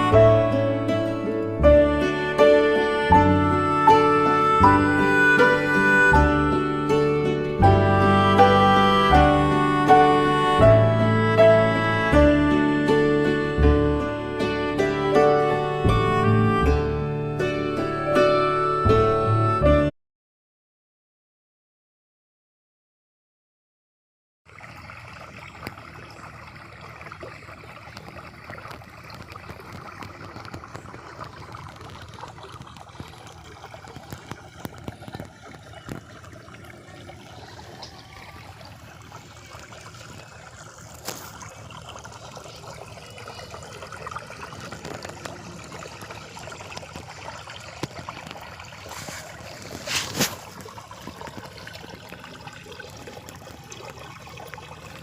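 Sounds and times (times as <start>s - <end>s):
water trickling: 0.0s - 18.5s, 24.5s - 55.0s
small clicks and splashes: 24.5s - 55.0s.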